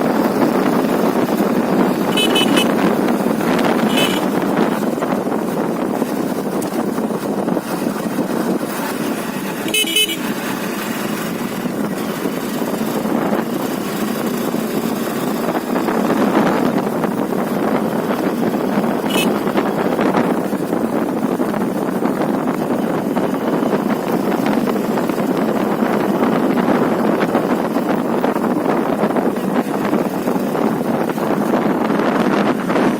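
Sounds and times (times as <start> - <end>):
wind and motorcycle running noise: 0.0 - 32.9
horn toot: 2.0 - 3.0, 3.8 - 4.5, 9.6 - 10.4, 19.0 - 19.6.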